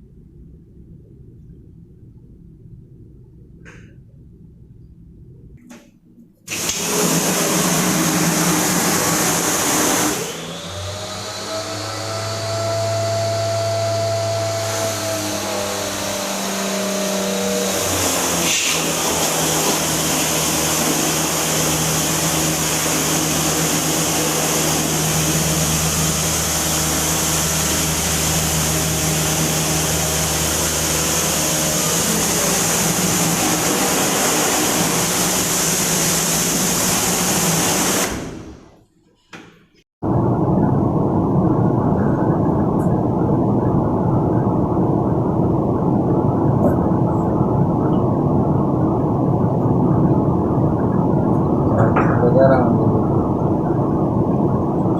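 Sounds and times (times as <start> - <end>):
cleaning machine hissing and humming: 6.5 - 38.6.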